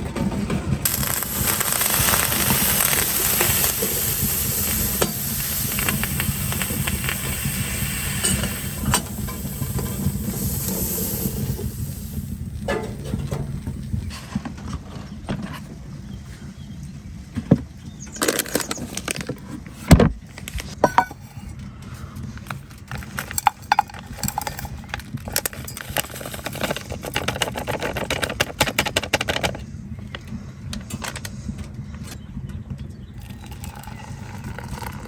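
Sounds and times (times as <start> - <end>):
objects knocking and clicking: 17.5 - 21.5, 22.5 - 29.7
quick rattling and clinking: 22.9 - 29.6.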